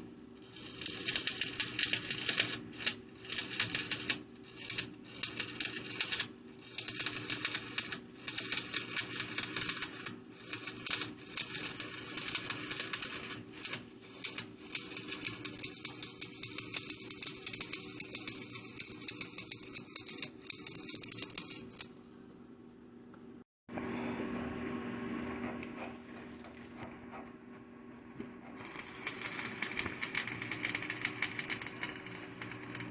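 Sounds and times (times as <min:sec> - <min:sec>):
welding arc crackling: 0:00.4 - 0:21.9, 0:28.6 - 0:32.9.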